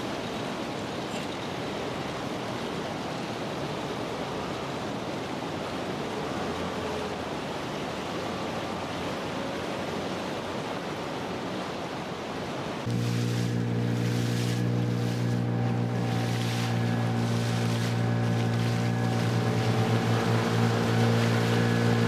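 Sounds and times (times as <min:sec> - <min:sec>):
river rapids and waterfall rushing: 0:00.0 - 0:22.0.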